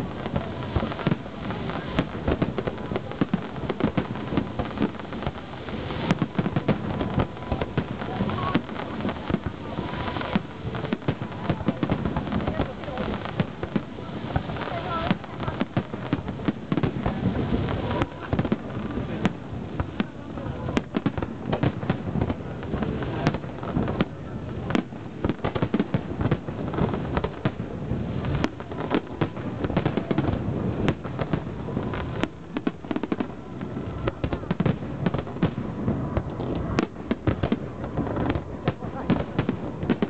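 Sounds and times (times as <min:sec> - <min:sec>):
fireworks bursting: 0:00.0 - 0:40.0.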